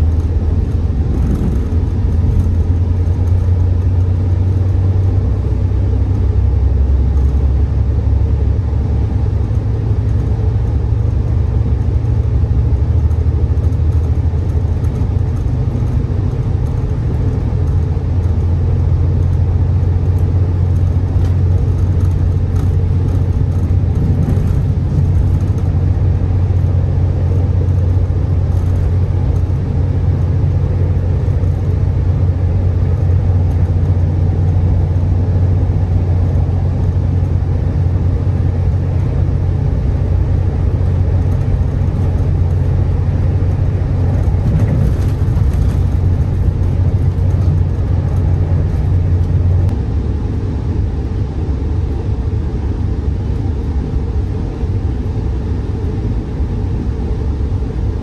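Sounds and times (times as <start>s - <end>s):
train interior low rumble: 0.0s - 58.0s.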